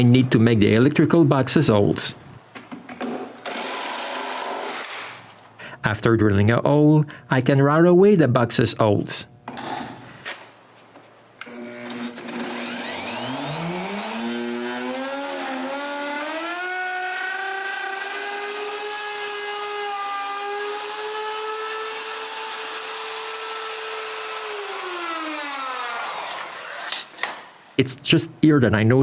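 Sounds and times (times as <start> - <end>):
wood router whine: 3.4 - 5.1, 11.4 - 26.9.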